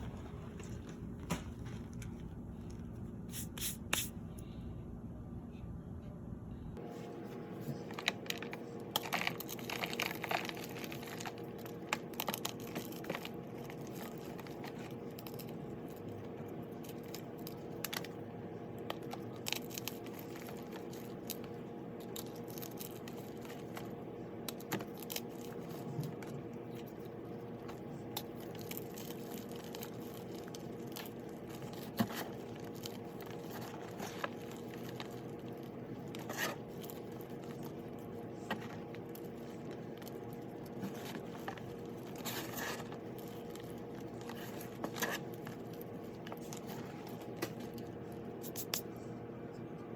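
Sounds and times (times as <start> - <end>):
crunchy block crushing: 7.8 - 18.2, 18.8 - 48.0.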